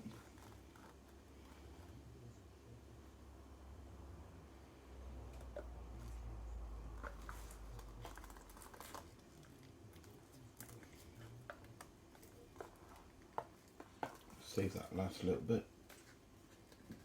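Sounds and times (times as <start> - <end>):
plastic cups clicking and crinkling: 5.4 - 14.9.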